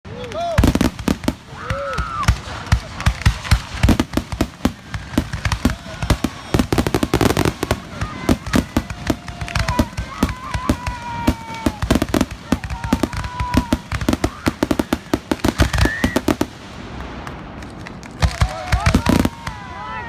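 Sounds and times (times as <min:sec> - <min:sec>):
fireworks bangs and crackling: 0:00.1 - 0:20.0.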